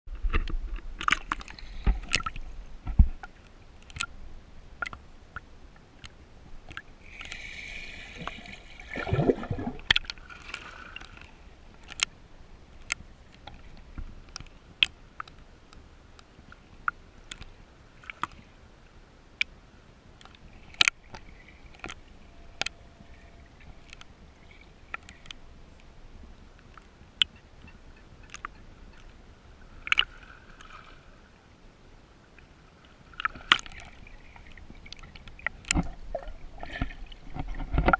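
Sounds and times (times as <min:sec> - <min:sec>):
water sloshing and gurgling: 0:00.1 - 0:15.5, 0:16.2 - 0:18.7, 0:19.4 - 0:31.4, 0:32.2 - 0:37.9
water splash: 0:06.7 - 0:12.0.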